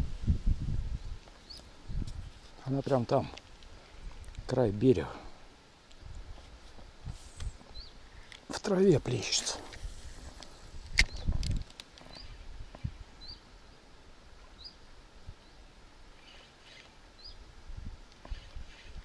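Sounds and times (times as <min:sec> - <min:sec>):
small bird chirping: 0:01.0 - 0:02.1, 0:07.4 - 0:08.3, 0:12.0 - 0:13.8, 0:14.5 - 0:14.8, 0:16.2 - 0:17.4, 0:18.2 - 0:19.0
sharp click: 0:10.9 - 0:12.0.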